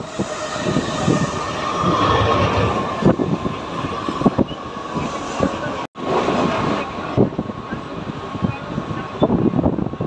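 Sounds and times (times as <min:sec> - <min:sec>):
train rumble and rattle: 0:00.0 - 0:10.0.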